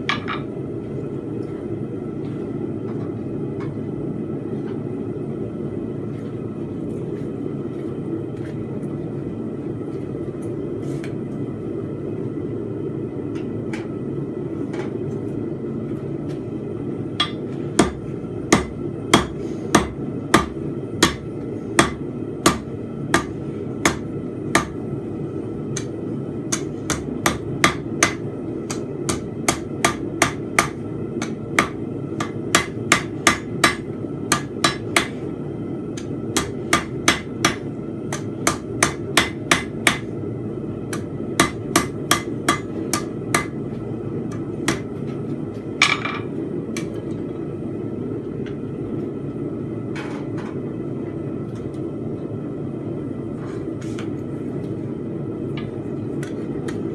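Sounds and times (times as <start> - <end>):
hammer striking steel on anvil: 17.2 - 21.2, 21.8 - 24.0, 24.6 - 24.8, 26.5 - 35.1, 36.0 - 40.0, 40.9 - 43.6.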